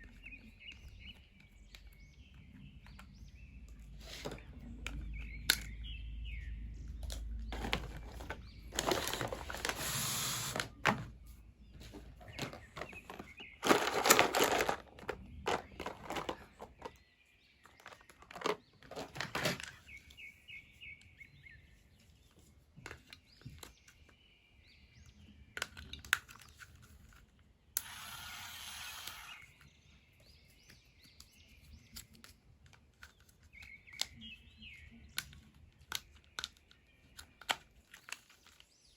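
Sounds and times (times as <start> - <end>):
plastic and cardboard rustling: 7.4 - 17.0, 17.6 - 20.2.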